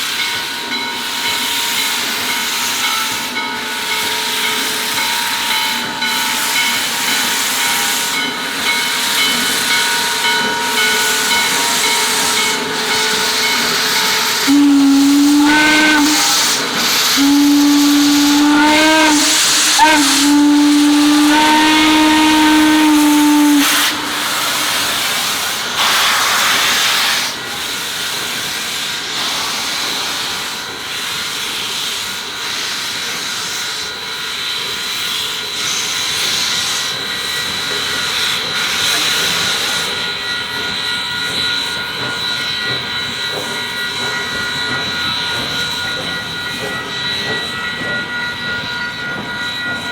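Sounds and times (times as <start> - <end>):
hiss of escaping steam: 0.0 - 40.2
steam locomotive whistle blasts: 0.3 - 27.8.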